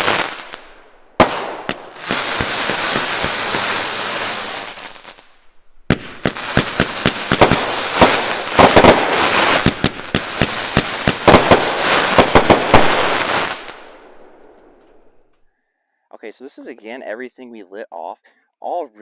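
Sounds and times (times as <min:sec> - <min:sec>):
firework hiss: 0:00.0 - 0:14.2
firework crackling: 0:00.0 - 0:14.8
sharp firework bangs: 0:00.0 - 0:15.1.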